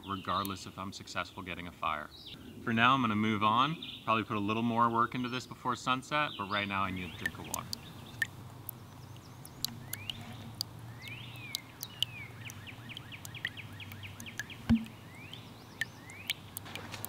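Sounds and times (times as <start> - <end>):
small birds chirping: 0.0 - 0.8, 3.5 - 17.0
low thump: 14.7 - 14.9.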